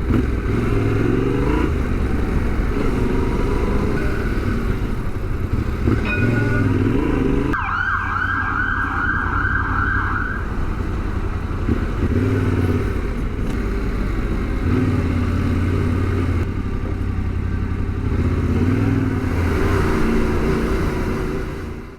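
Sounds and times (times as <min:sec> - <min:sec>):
motorcycle engine running: 0:00.0 - 0:07.6, 0:10.4 - 0:19.4
emergency siren yelping: 0:07.5 - 0:10.7.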